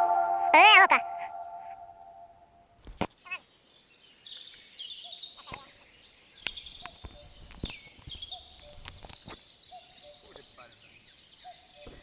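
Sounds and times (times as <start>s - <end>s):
songbirds singing: 3.5s - 11.8s.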